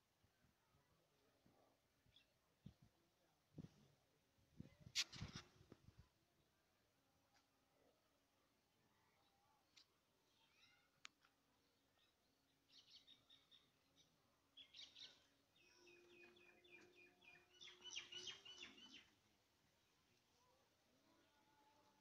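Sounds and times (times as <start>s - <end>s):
birdsong chirps: 9.1s - 19.3s.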